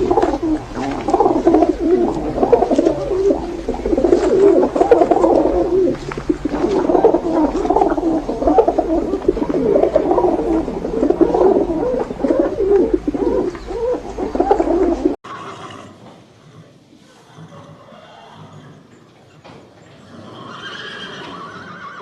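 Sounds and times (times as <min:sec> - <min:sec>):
birds calling: 0:00.0 - 0:15.2.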